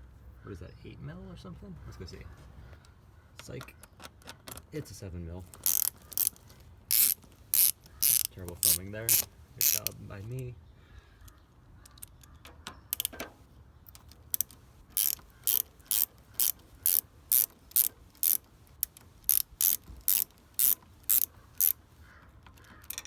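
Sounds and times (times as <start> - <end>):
ratchet wrench clicking: 5.5 - 10.0, 12.9 - 13.3, 13.9 - 21.8, 22.5 - 23.0.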